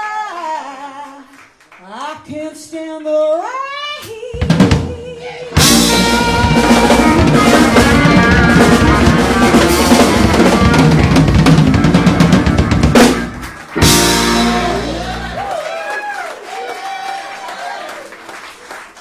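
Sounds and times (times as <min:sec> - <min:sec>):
blues soul band playing: 0:05.5 - 0:15.5.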